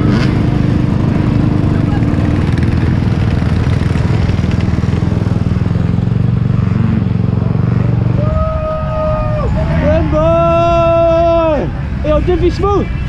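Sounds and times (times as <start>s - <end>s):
two-stroke motorcycle engine running: 0.0s - 8.2s.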